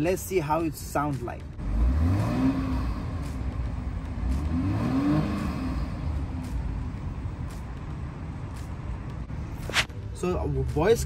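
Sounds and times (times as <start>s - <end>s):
car engine pulling away: 1.6s - 9.6s.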